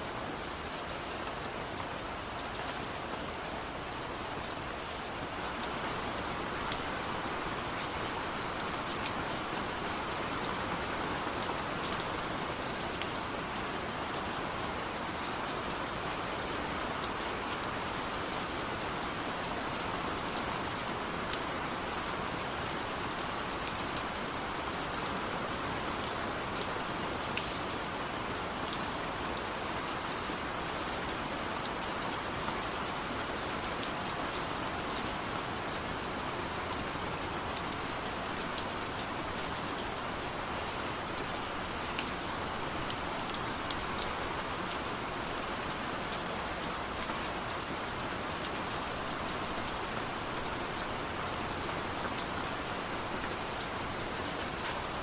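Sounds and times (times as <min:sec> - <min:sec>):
steady rain hiss: 0:00.0 - 0:55.0
raindrops ticking on surface: 0:23.1 - 0:55.0.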